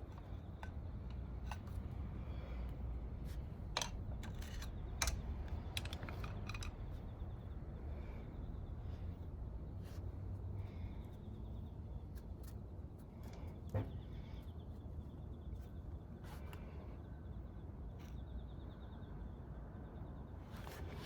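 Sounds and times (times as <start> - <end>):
steady low hum: 0.0 - 21.0
small tools clicking and tapping: 3.7 - 7.1.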